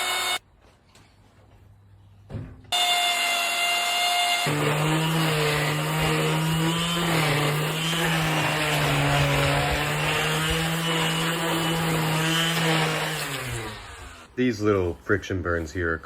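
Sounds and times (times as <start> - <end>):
electric router cutting wood: 0.0 - 0.4, 2.8 - 14.3.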